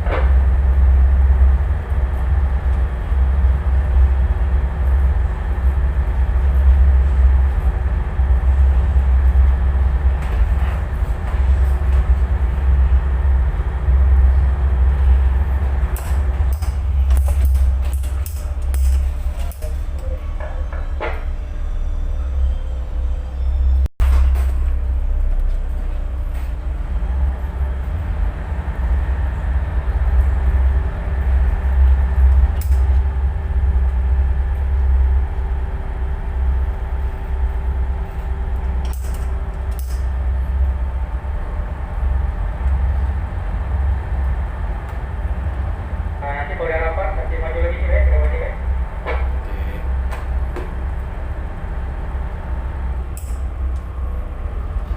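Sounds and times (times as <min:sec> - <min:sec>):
faint steady hum tones: 0:00.0 - 0:54.9
tugboat engine rumbling: 0:00.0 - 0:54.9.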